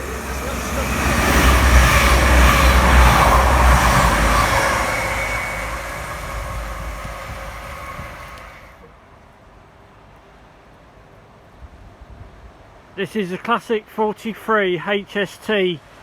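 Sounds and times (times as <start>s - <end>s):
train wheel noise: 0.0s - 8.9s
diesel train engine rumble: 0.0s - 9.0s.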